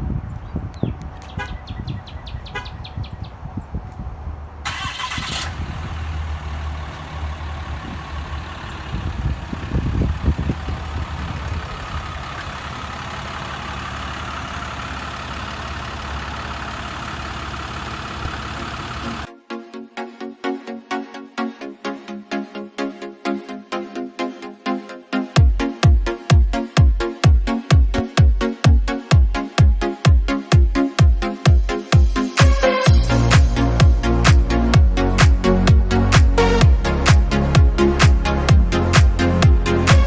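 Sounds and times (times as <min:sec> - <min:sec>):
diesel engine starting and idling: 0:04.2 - 0:19.3, 0:31.5 - 0:40.0.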